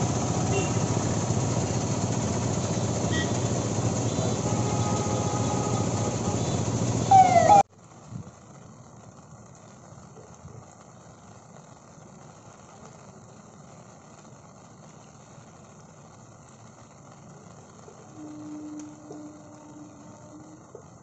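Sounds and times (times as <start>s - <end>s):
rain on wet road: 0.0s - 21.0s
low steady hum: 16.9s - 20.9s.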